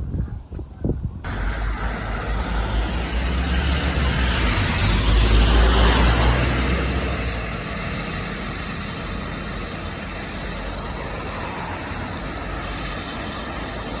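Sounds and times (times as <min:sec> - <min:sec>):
tyre hiss: 0:01.3 - 0:07.4
vehicle engine running: 0:01.3 - 0:11.1.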